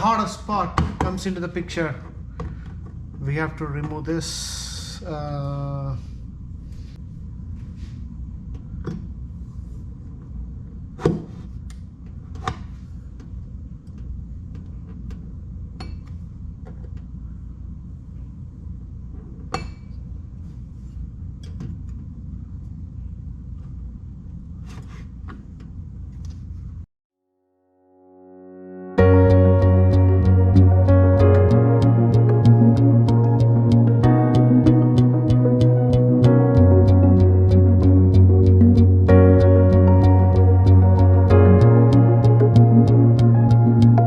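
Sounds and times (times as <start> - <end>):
steady low hum: 29.0 - 44.0.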